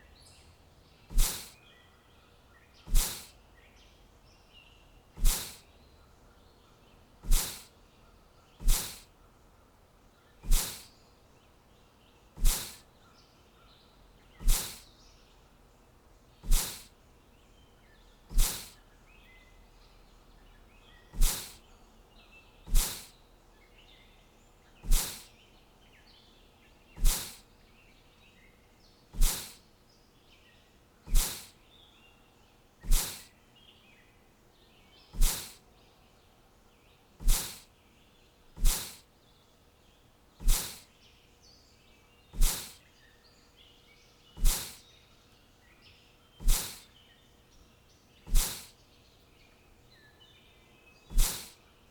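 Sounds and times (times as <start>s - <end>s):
faint bird chirping: 0.0s - 51.9s
sharp hissing bursts: 1.1s - 1.6s, 2.9s - 3.3s, 5.2s - 5.7s, 7.2s - 7.7s, 8.6s - 9.1s, 10.4s - 10.9s, 12.4s - 12.8s, 14.4s - 14.8s, 16.4s - 16.9s, 18.3s - 18.8s, 21.1s - 21.6s, 22.7s - 23.2s, 24.8s - 25.3s, 27.0s - 27.5s, 29.2s - 29.6s, 31.1s - 31.6s, 32.8s - 33.3s, 35.2s - 35.6s, 37.2s - 37.7s, 38.6s - 39.1s, 40.4s - 40.9s, 42.4s - 42.8s, 44.4s - 44.8s, 46.4s - 46.9s, 48.3s - 48.8s, 51.1s - 51.6s.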